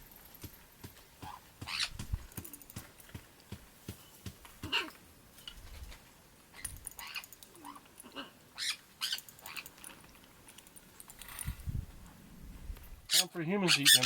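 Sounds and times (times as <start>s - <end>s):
parrots squawking: 7.0s - 9.7s, 13.1s - 14.0s.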